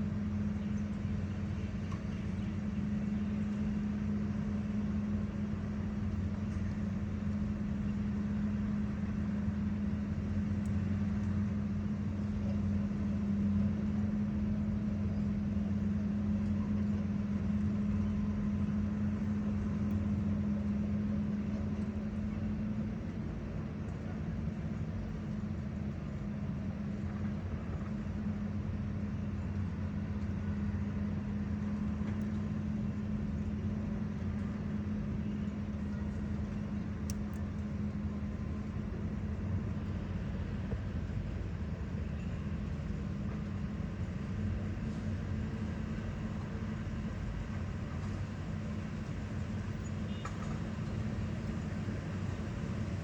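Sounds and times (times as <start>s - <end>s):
heavy engine running steadily: 0.0s - 53.0s.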